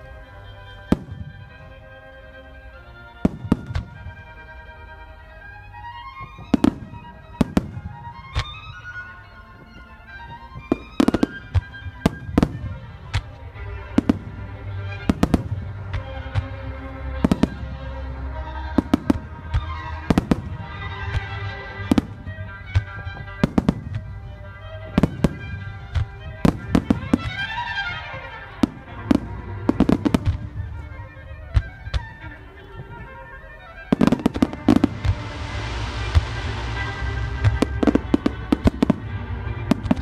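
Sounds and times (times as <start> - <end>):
music with sustained notes: 0.0 - 40.0
firework shells bursting: 18.8 - 33.1, 33.8 - 40.0.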